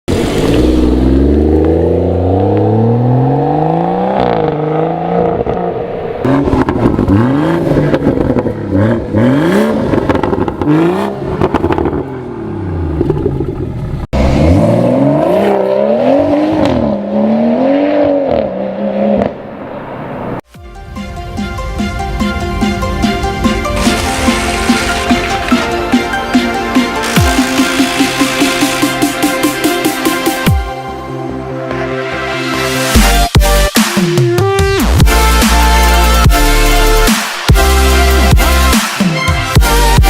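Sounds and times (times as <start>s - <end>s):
car engine revving: 0.1s - 20.4s, 22.1s - 30.5s.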